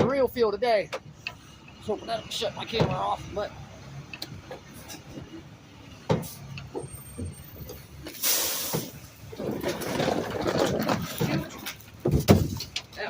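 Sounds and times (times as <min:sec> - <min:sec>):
garbage truck rumbling and scraping: 0:00.0 - 0:13.0
air brakes hissing: 0:06.2 - 0:09.2.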